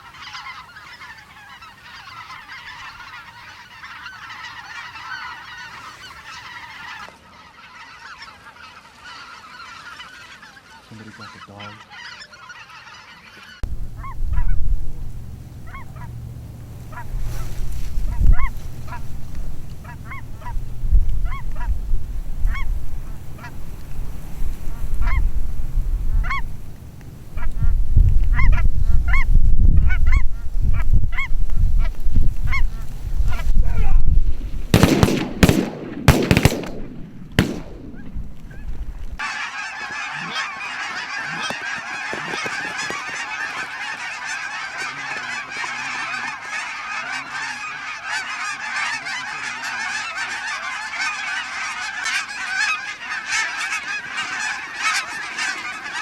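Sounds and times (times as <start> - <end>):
geese honking: 0.0 - 56.0
wind rumble on microphone: 13.6 - 39.2.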